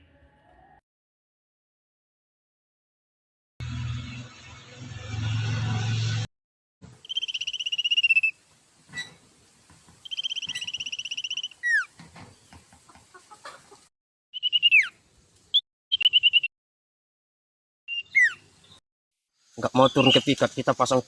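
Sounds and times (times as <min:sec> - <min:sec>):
bird downward-sliding whistles: 0:07.0 - 0:08.4, 0:10.0 - 0:11.8
bird rattling trills: 0:10.0 - 0:12.6.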